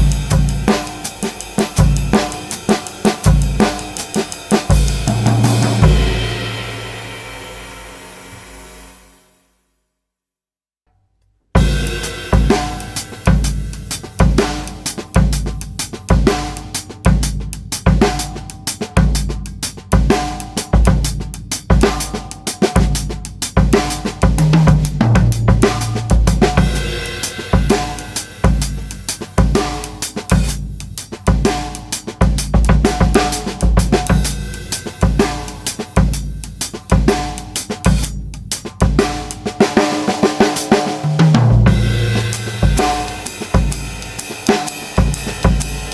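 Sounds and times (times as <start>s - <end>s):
drum kit groove: 0.0s - 9.2s, 11.6s - 45.9s
tom fills: 3.3s - 9.3s, 24.3s - 30.0s.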